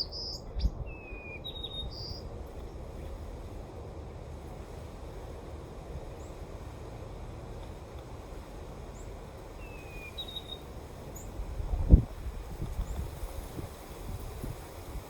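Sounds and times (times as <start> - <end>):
bird chirps: 0.0 - 2.3, 9.0 - 11.3
wind rumbling against microphone: 0.0 - 15.0.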